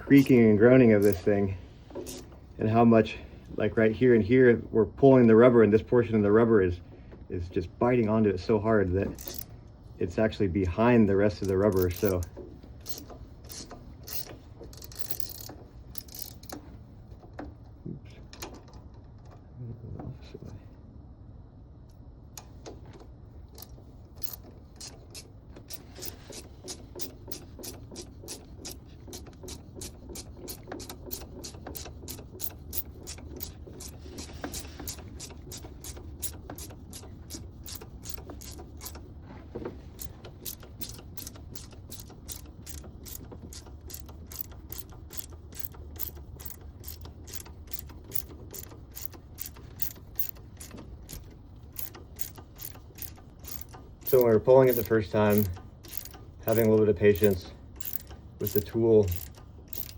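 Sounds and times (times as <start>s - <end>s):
ratchet clicking: 1.0s - 1.3s, 9.1s - 9.5s, 11.4s - 16.6s, 23.6s - 39.1s, 39.9s - 59.9s.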